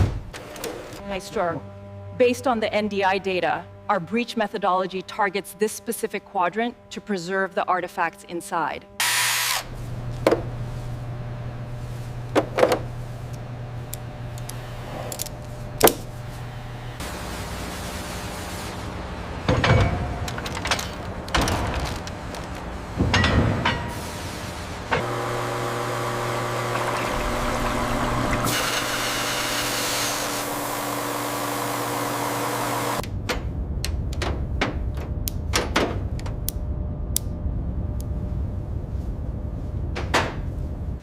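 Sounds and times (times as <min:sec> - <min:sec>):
cutting machine humming: 0:08.8 - 0:17.7, 0:24.9 - 0:33.0.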